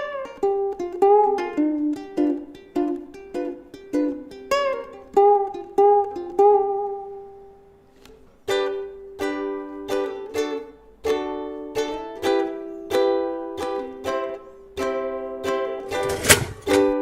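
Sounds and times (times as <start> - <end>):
ukulele plucked melody: 0.0 - 17.0
ukulele strummed chord: 8.5 - 17.0.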